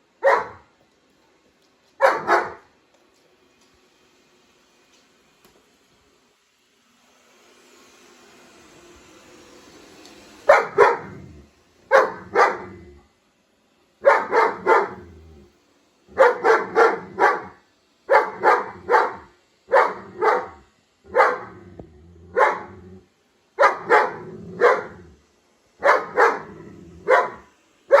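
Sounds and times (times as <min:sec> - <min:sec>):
dog barking: 0:00.2 - 0:00.7, 0:02.0 - 0:02.7, 0:10.5 - 0:11.3, 0:11.9 - 0:12.8, 0:14.0 - 0:15.2, 0:16.1 - 0:21.6, 0:22.3 - 0:22.8, 0:23.6 - 0:25.1, 0:25.8 - 0:28.0.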